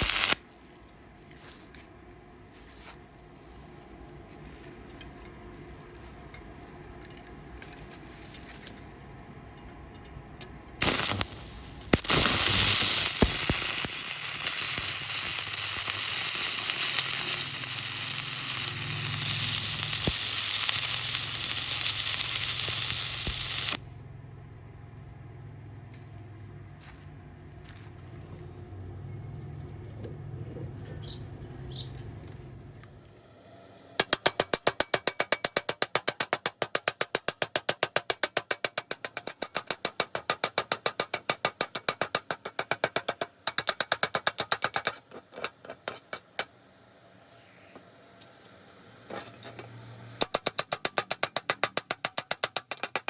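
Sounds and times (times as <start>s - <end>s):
welding arc crackling sizzle: 0.0s - 1.1s, 10.8s - 23.9s.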